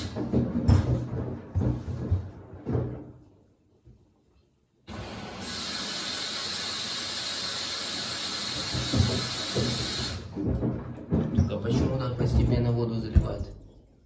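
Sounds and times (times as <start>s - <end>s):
water rushing into washing machine: 0.0s - 1.2s, 4.9s - 11.6s.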